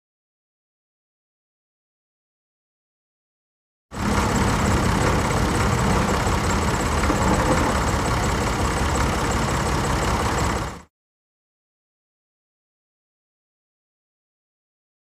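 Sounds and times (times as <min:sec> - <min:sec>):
tractor engine rumbling: 0:04.0 - 0:10.8.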